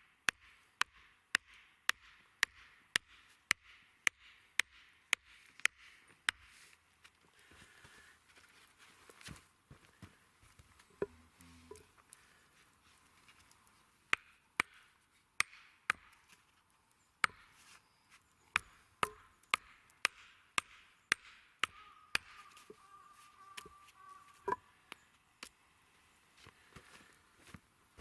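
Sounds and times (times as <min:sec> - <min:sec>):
tool striking wood: 0:18.6 - 0:22.4.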